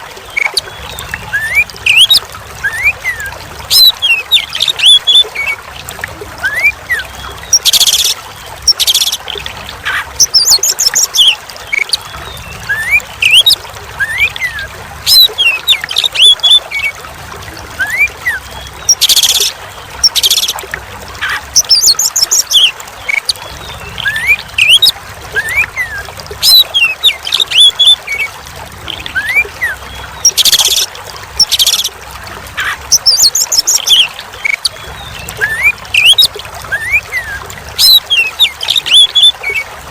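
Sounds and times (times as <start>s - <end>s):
running water trickling: 0.0s - 39.9s
bird whistling and chattering: 6.4s - 9.2s, 17.8s - 20.5s, 24.0s - 28.0s, 28.9s - 30.8s, 35.4s - 39.6s.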